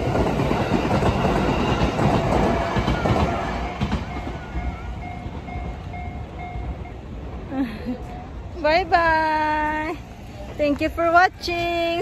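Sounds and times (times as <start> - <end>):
crossing warning bell ringing: 0.0 - 9.3
electric train passing: 0.0 - 12.0.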